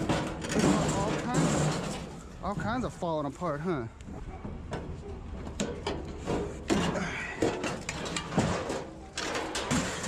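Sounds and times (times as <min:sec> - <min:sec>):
metal grill clanking and rattling: 0:00.0 - 0:02.7, 0:04.7 - 0:10.0.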